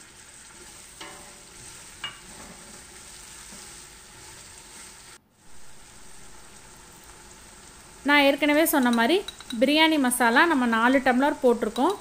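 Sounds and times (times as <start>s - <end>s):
spatula stirring in pot: 0.0s - 5.2s, 8.6s - 9.8s
food sizzling in oil: 0.0s - 12.0s.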